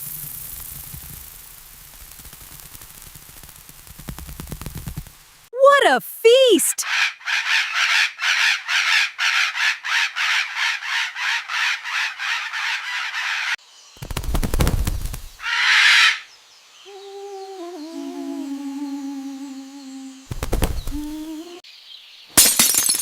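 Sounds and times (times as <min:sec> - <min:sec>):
cartoon parrots squawking: 0:06.6 - 0:13.6, 0:15.4 - 0:16.2.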